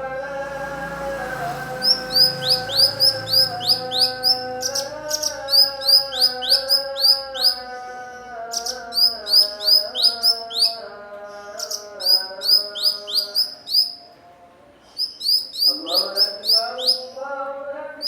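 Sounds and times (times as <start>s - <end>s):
humming tone: 0.0s - 7.7s
songbird chirping: 0.0s - 18.0s.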